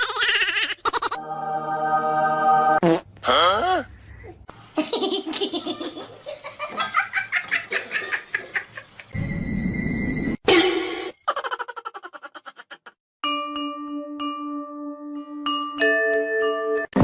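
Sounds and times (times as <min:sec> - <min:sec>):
person laughing: 0:04.8 - 0:09.2, 0:11.3 - 0:13.0.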